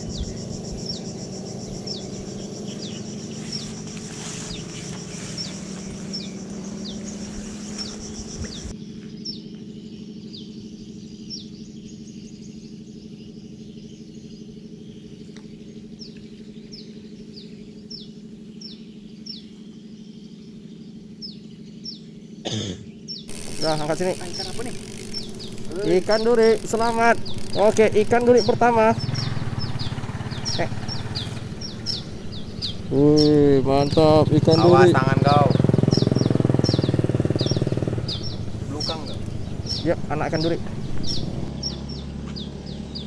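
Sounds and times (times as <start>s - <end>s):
low outdoor hum: 0.0s - 43.0s
small bird chirping: 0.0s - 43.0s.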